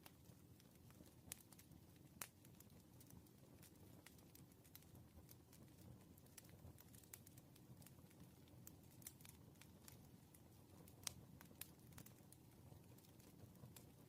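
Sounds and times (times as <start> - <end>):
low fire rumble: 0.0 - 14.0
wood fire crackling: 0.0 - 14.0.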